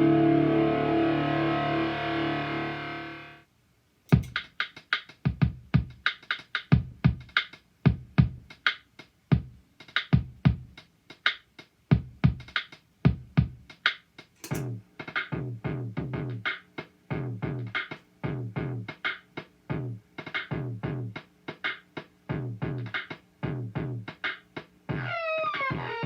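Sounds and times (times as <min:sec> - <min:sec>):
distorted electric guitar: 0:00.0 - 0:03.4, 0:24.9 - 0:26.0
drum machine beat: 0:04.1 - 0:26.0.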